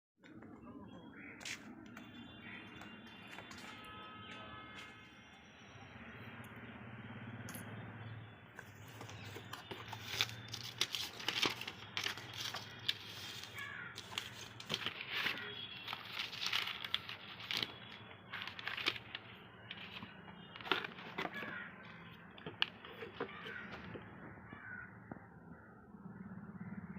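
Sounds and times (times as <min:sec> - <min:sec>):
material crinkling and rustling: 0:08.6 - 0:24.0.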